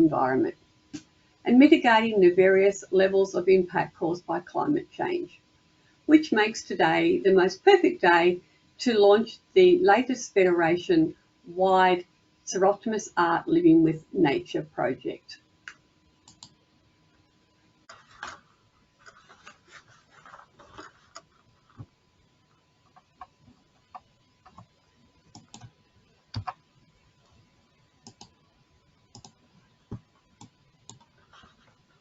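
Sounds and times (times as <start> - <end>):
faint high hum: 0.0 - 32.0
faint clicks and taps: 17.9 - 27.4, 29.2 - 31.8.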